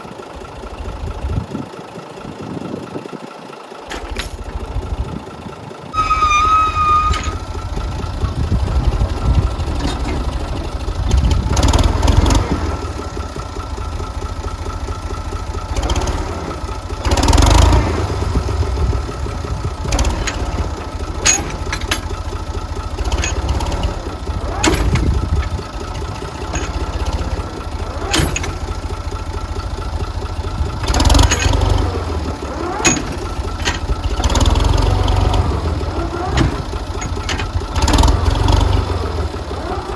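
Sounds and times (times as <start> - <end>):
tractor engine running: 0.0 - 39.9
sharp knocks and clanks: 19.9 - 22.3, 23.1 - 27.4, 28.0 - 28.8, 32.6 - 34.7, 36.0 - 38.3.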